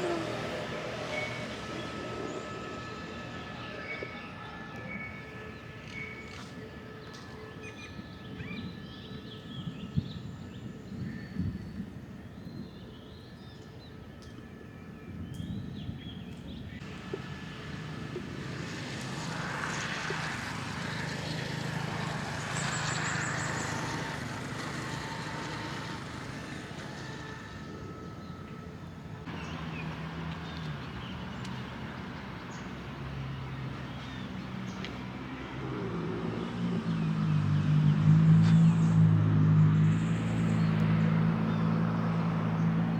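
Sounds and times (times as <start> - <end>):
birds chirping: 0.0 - 14.4
wheel and rail noise: 16.8 - 36.0.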